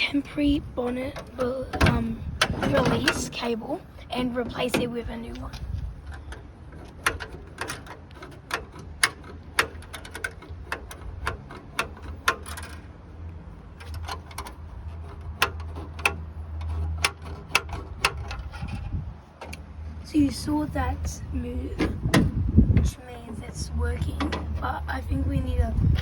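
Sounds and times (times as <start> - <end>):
low steady hum: 0.0 - 26.0
sharp metallic clicks and taps: 4.6 - 12.9, 13.8 - 18.5.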